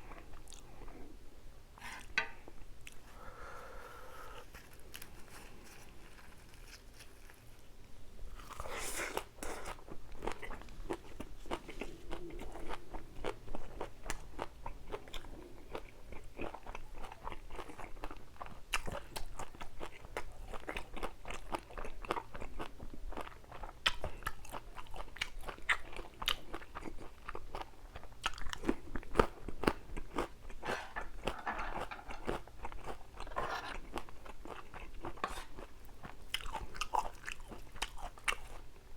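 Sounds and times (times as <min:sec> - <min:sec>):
person chewing crunchy food: 0:08.3 - 0:38.6.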